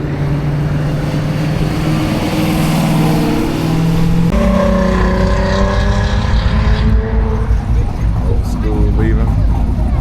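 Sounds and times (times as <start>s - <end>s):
car engine running at low revs: 3.8s - 10.0s.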